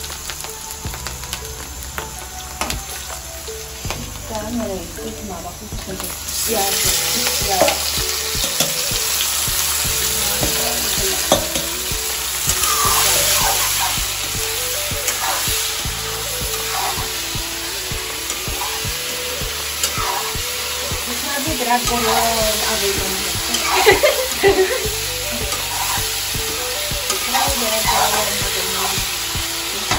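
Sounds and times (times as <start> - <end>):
eel sizzling in hot oil: 0.0 - 29.9
metal spatula scraping a wok: 15.1 - 17.2, 19.8 - 20.4, 21.8 - 24.8, 25.4 - 26.3, 27.1 - 29.0.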